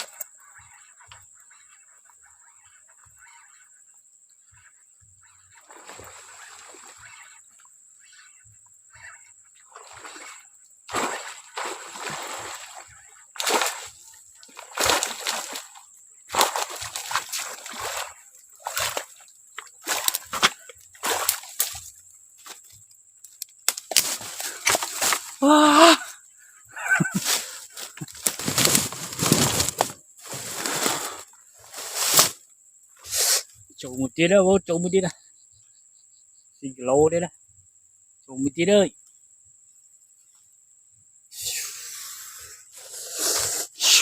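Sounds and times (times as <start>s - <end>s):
water splashing: 5.6s - 7.4s, 9.7s - 21.9s.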